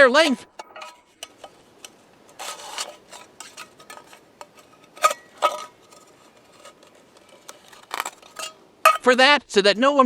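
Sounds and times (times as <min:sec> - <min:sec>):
knife scraping thin tin: 0:00.0 - 0:09.2
ringing metallic clanks: 0:00.5 - 0:01.5, 0:07.9 - 0:09.2.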